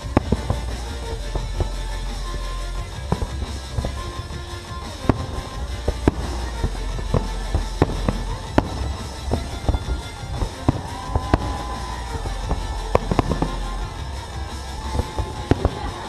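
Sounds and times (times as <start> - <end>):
fireworks cracks and bangs: 0.0 - 16.0
steady low rumble: 0.0 - 16.0.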